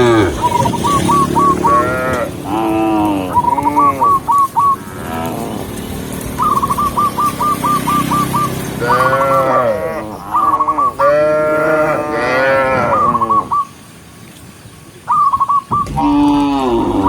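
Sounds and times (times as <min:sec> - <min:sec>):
cattle mooing: 0:00.0 - 0:05.8, 0:08.8 - 0:13.5, 0:15.8 - 0:17.0
high chirping call: 0:00.0 - 0:13.9, 0:15.0 - 0:17.0.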